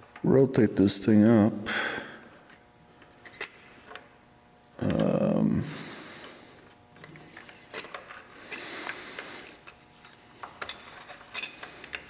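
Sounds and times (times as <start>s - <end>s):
light metal clicks and scraping: 6.6s - 12.0s.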